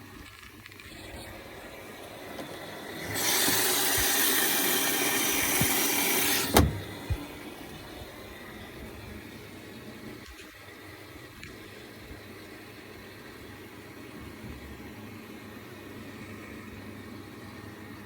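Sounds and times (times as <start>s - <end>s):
water intake rushing hiss: 0.9s - 8.7s
washing machine click: 5.5s - 7.3s
short thump: 6.4s - 7.3s.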